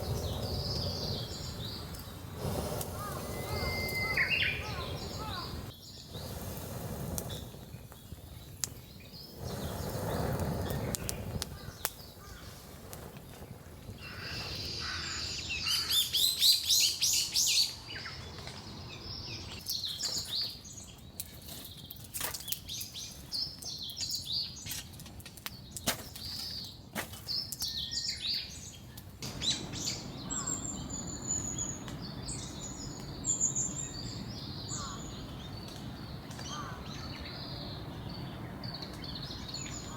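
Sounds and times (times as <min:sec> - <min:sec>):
thin bird whistles: 0:00.0 - 0:07.6
birds chirping: 0:00.0 - 0:24.8, 0:25.5 - 0:39.9.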